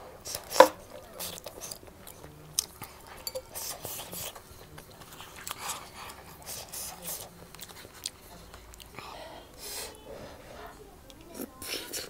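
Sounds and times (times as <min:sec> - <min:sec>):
person chewing food: 0:00.2 - 0:09.8.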